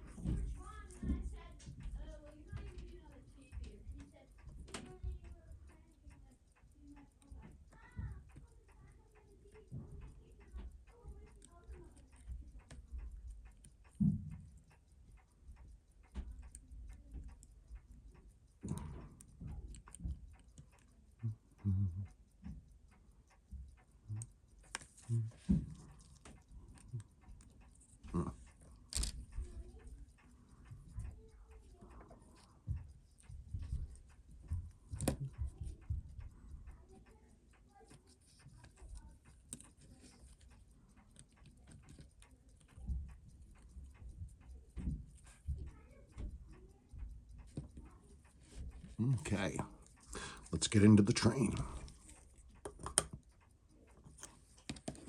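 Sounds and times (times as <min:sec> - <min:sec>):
small clicks and taps of tools: 0:00.0 - 0:55.0
muffled low sounds: 0:21.2 - 0:22.1.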